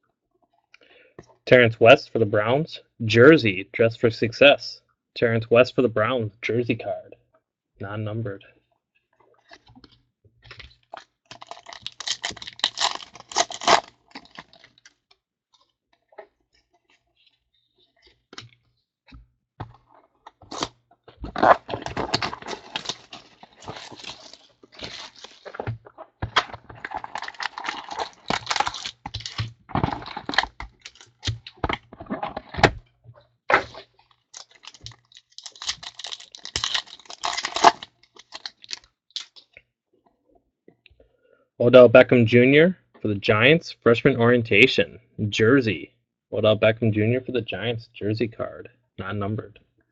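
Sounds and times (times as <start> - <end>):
card packs crinkling and ripping: 10.5 - 15.0, 20.5 - 32.4, 33.5 - 39.4.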